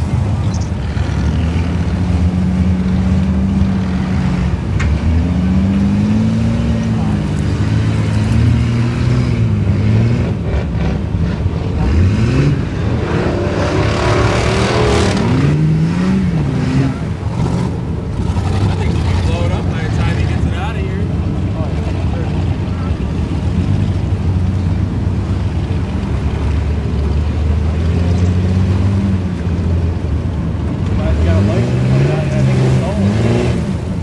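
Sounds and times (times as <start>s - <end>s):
truck engine revving hard: 0.0s - 34.0s.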